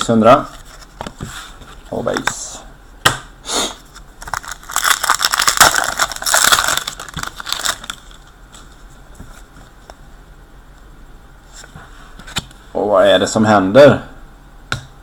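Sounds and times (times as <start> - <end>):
foil wrapper crinkling and tearing: 4.2 - 8.2.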